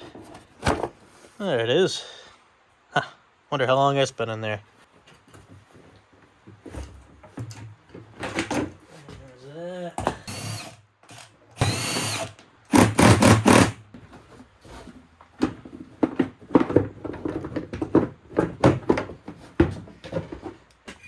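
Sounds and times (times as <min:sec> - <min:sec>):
impact wrench running: 0:10.2 - 0:13.8.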